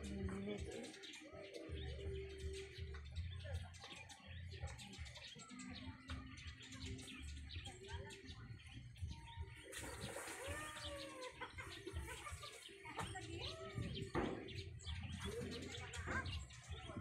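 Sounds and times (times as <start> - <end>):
faint bird calls: 9.1 - 17.0.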